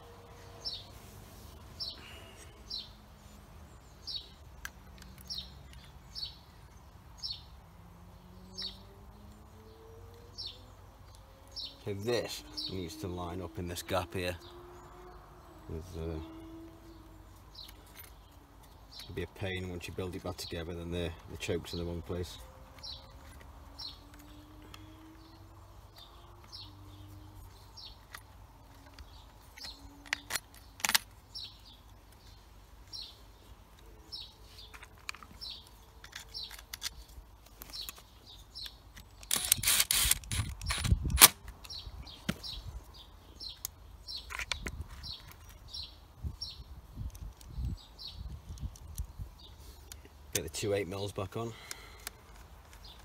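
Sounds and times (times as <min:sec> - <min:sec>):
small bird chirping: 0:00.0 - 0:53.0
sharp clicks: 0:34.7 - 0:42.6.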